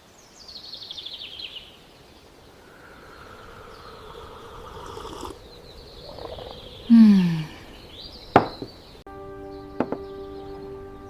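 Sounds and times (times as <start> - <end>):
faint outdoor ambience: 0.0 - 11.0
songbird trill: 0.0 - 11.0
faint steady tone: 1.7 - 9.0.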